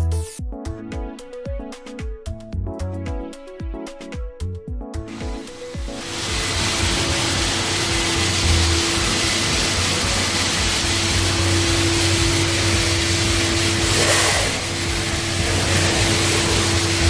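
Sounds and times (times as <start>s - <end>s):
motor humming with rushing hiss: 5.1s - 17.0s.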